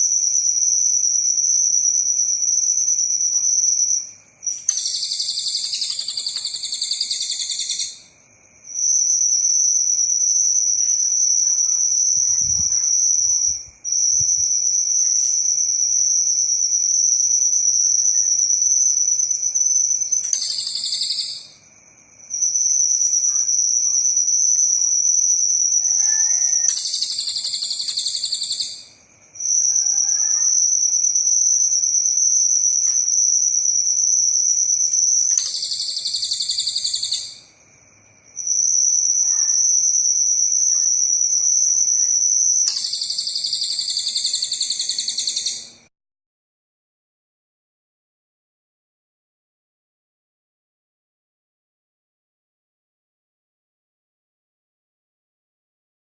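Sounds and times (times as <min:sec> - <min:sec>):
bird singing high trills: 0:04.5 - 0:08.1, 0:20.1 - 0:21.6, 0:25.9 - 0:29.0, 0:35.2 - 0:37.5, 0:42.7 - 0:45.8.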